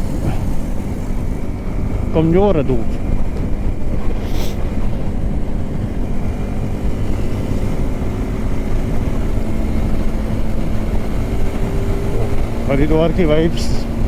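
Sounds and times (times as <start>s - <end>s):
motorcycle engine cruising: 0.0s - 14.0s
road noise: 0.0s - 14.0s
wind noise: 0.0s - 14.0s
short hiss: 4.2s - 4.6s.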